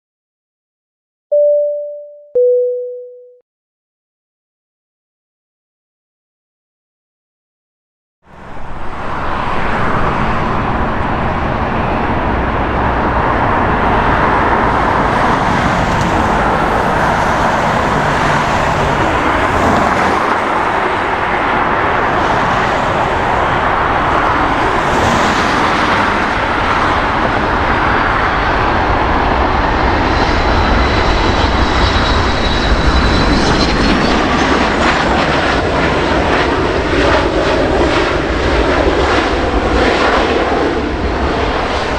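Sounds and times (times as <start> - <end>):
loud jet rush: 8.5 - 41.9.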